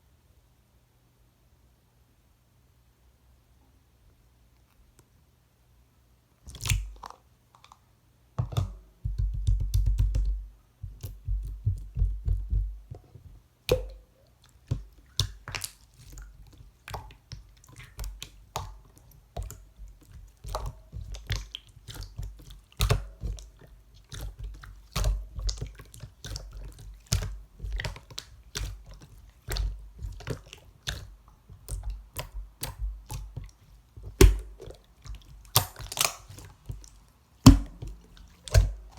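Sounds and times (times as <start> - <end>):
slime sticky clicks and pops: 35.5 - 36.4.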